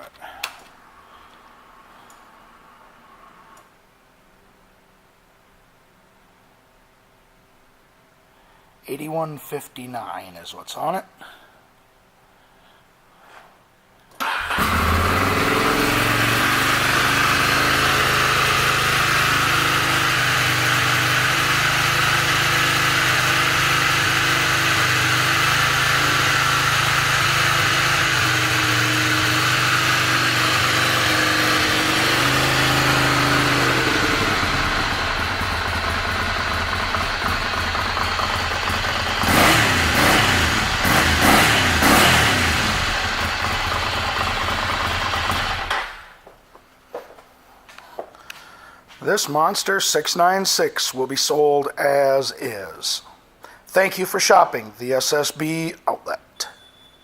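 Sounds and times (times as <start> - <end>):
motorcycle engine idling and revving: 14.3 - 46.0.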